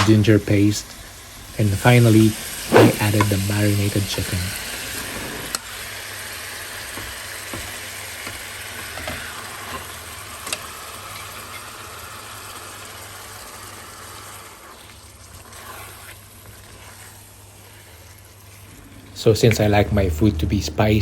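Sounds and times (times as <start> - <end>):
chicken sizzling in a pan: 0.0 - 19.1
low hum: 19.4 - 21.0.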